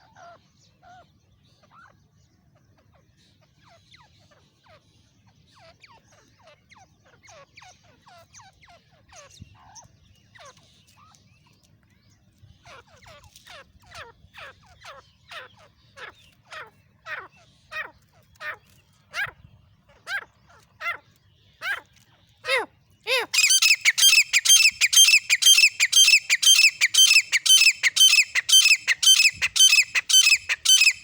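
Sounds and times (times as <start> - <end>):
partridge calling: 22.5 - 31.0.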